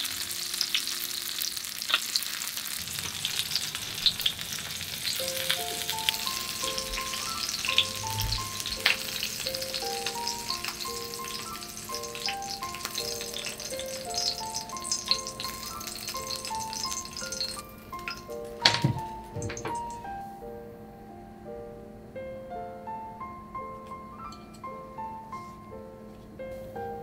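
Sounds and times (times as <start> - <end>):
fish sizzling in hot oil: 0.0 - 19.9
gentle piano music: 0.0 - 27.0.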